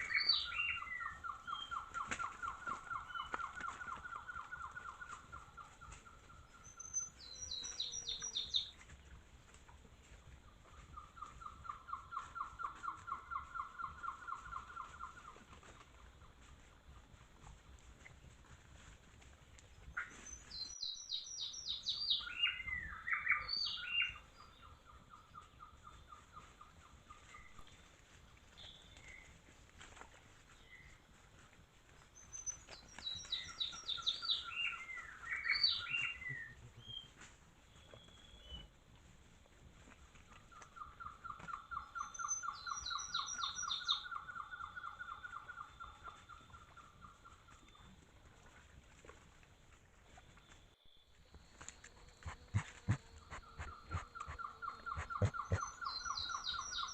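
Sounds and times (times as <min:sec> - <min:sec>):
bird singing: 0:00.0 - 0:08.8, 0:20.0 - 0:26.4, 0:32.2 - 0:37.1, 0:40.8 - 0:47.8, 0:50.4 - 0:56.9.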